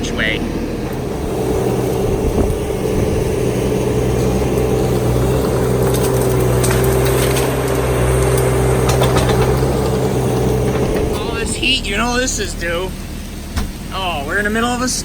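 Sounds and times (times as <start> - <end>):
diesel engine whining: 0.0 - 15.0
branches cracking and snapping: 1.3 - 11.2.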